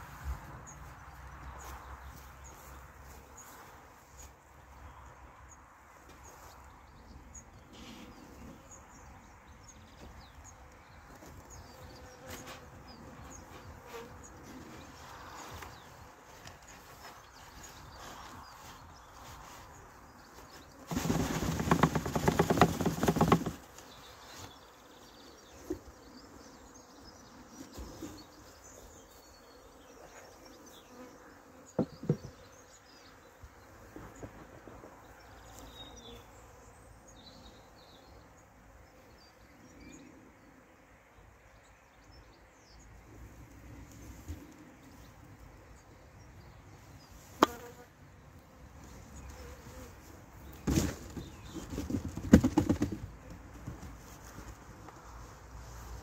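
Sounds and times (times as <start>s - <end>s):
loud close bee buzz: 47.4s - 47.9s.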